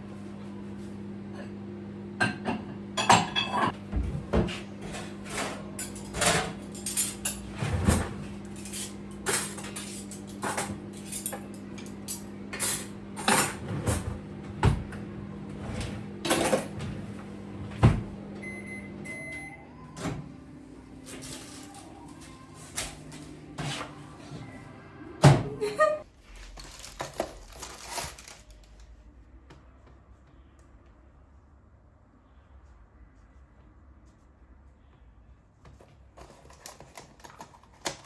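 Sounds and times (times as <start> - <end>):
microwave oven humming: 0.0 - 30.6
cupboard doors and dishes clattering: 2.3 - 12.0
microwave beeping: 17.4 - 25.7.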